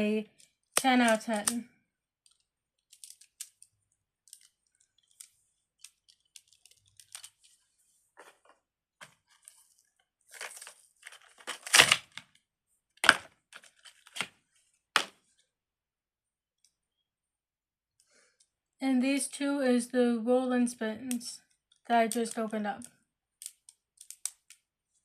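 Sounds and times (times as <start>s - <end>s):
plastic items clicking and crinkling: 0.2s - 1.6s, 2.2s - 12.4s, 13.0s - 14.4s, 21.4s - 24.6s
plastic crackling and tearing: 0.3s - 1.6s, 2.2s - 7.6s, 8.2s - 12.4s, 13.0s - 14.4s, 21.7s - 24.6s.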